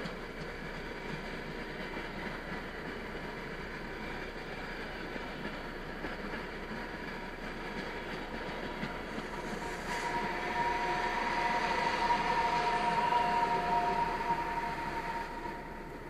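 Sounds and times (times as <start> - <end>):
train rolling past: 0.0 - 16.0
steady high tone: 10.0 - 16.0.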